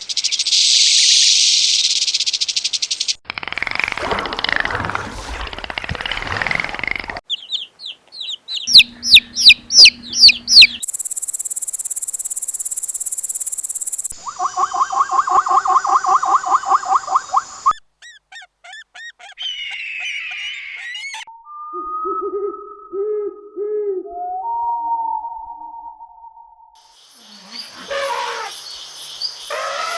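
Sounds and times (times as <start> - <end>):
animal chirps: 8.5 - 22.7
loud repeated animal calls: 27.2 - 28.6, 29.5 - 29.9.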